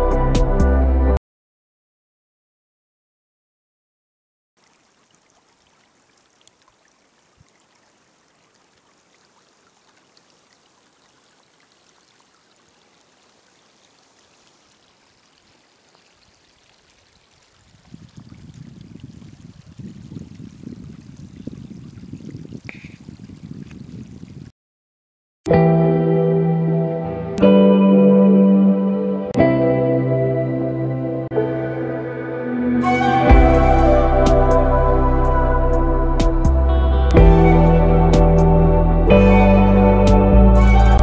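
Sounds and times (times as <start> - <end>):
low rumbling noise: 32.9 - 41.0.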